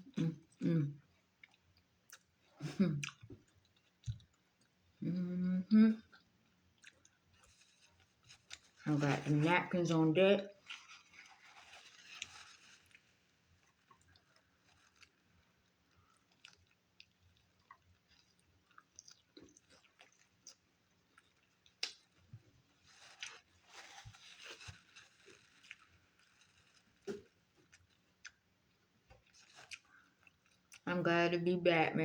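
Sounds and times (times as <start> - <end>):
person chewing crunchy food: 6.7 - 8.8, 10.5 - 30.8.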